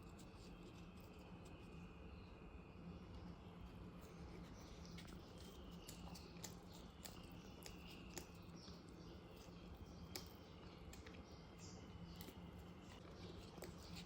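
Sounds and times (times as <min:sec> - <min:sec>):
low steady hum: 0:00.0 - 0:14.0
person chewing crisply: 0:03.8 - 0:14.0.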